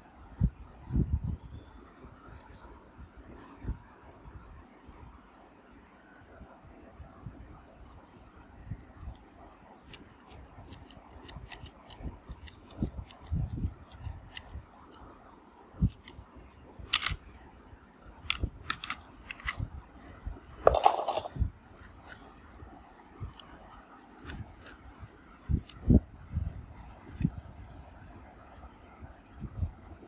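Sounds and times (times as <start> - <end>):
handling clicks and knocks: 18.3 - 19.6, 20.7 - 22.2.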